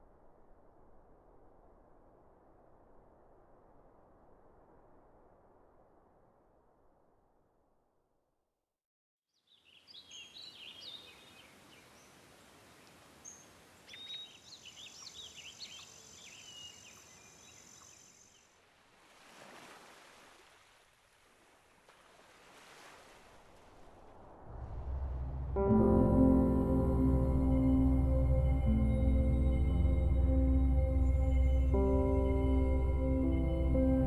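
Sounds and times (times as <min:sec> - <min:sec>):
birds chirping: 0:12.8 - 0:18.4
rushing noise: 0:23.7 - 0:34.0.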